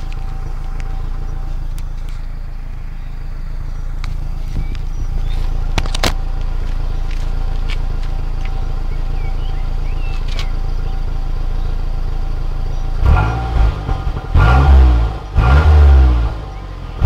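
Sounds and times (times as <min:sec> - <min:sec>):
car engine idling: 0:00.0 - 0:17.0
sharp clicks: 0:10.1 - 0:10.6.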